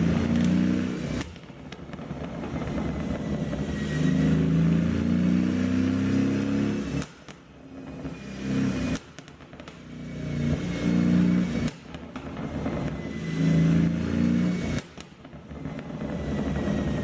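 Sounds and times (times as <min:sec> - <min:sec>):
car engine revving: 0:00.0 - 0:01.4, 0:02.6 - 0:07.2, 0:10.0 - 0:11.8, 0:12.9 - 0:14.8
exhaust pops and crackle: 0:00.0 - 0:17.0.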